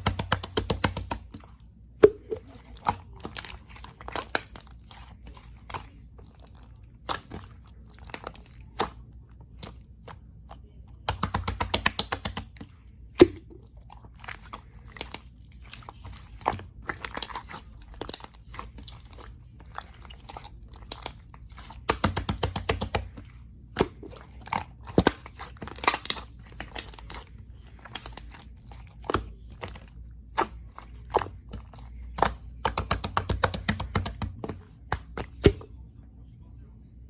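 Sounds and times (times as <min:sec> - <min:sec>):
slime clicking and popping: 0:00.0 - 0:01.4, 0:11.0 - 0:13.6, 0:20.8 - 0:27.2, 0:27.9 - 0:35.6.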